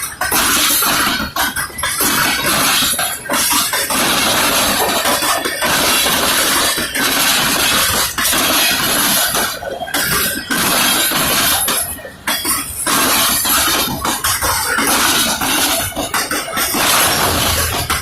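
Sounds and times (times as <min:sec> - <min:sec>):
train wheels clattering on rails: 0:00.0 - 0:18.0.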